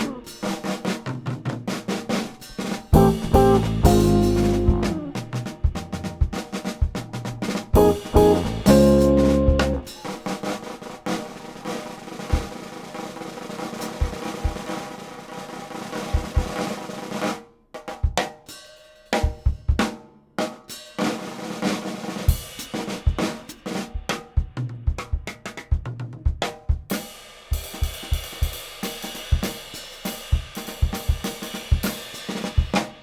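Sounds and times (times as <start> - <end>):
jazz quartet playing: 2.9 - 6.2, 7.8 - 10.0.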